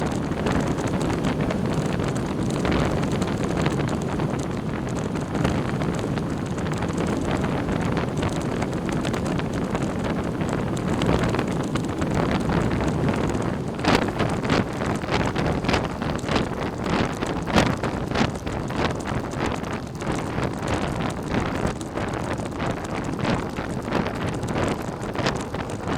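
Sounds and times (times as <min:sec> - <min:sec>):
vehicle road noise: 0:00.0 - 0:17.9
wind buffeting microphone: 0:00.0 - 0:25.9.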